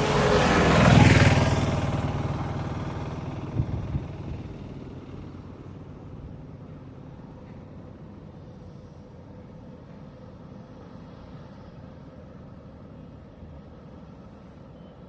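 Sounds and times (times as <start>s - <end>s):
vehicle passing by: 0.0s - 7.2s
faint low road rumble: 0.0s - 15.0s.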